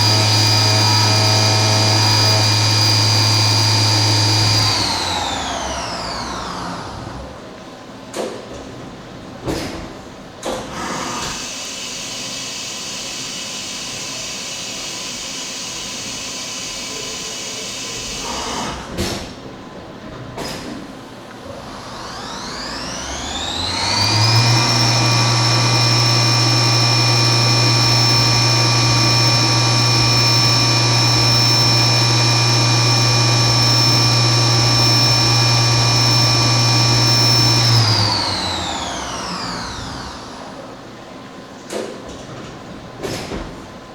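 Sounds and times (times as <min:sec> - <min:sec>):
milling machine noise: 0:00.0 - 0:07.4, 0:21.6 - 0:40.9
spindle high whine: 0:21.8 - 0:40.8.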